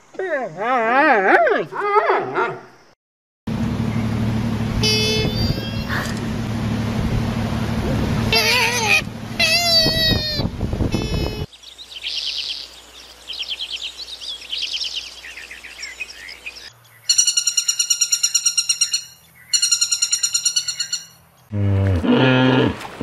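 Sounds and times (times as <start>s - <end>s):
small birds chirping and trilling: 8.4s - 21.5s.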